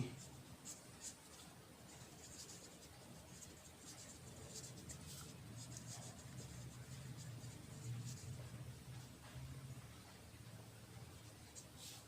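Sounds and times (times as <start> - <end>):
low steady hum: 0.0 - 12.0
pen scratching on writing surface: 0.2 - 8.5.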